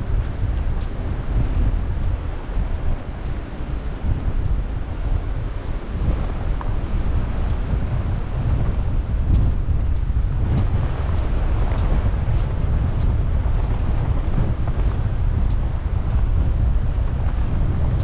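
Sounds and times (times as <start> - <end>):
storm wind buffeting microphone: 0.0 - 18.0.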